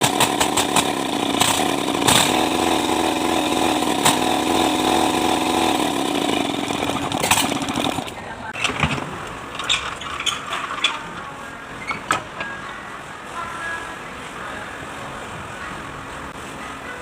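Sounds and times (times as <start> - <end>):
diesel engine running: 0.0 - 8.6.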